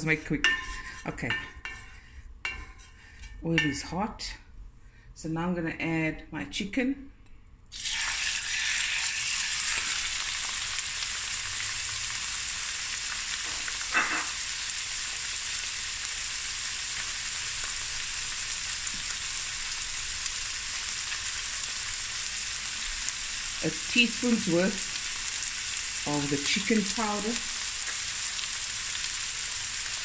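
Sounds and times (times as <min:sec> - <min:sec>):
chicken sizzling in hot oil: 0:07.7 - 0:30.0.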